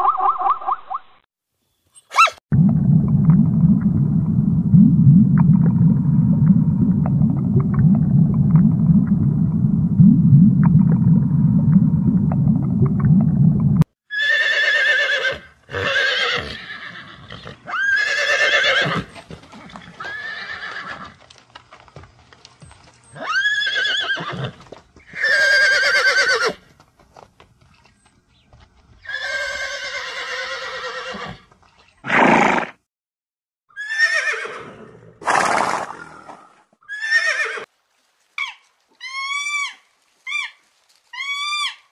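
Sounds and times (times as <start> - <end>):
low rumble: 2.5 - 13.9
horse whinnying: 14.1 - 21.2, 23.2 - 26.6, 29.0 - 32.8, 33.7 - 35.8, 36.8 - 37.7.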